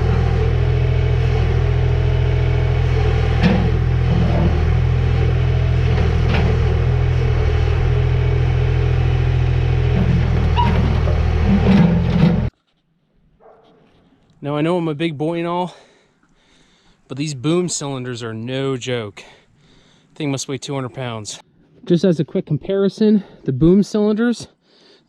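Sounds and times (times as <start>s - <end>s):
heavy equipment engine running: 0.0s - 12.5s.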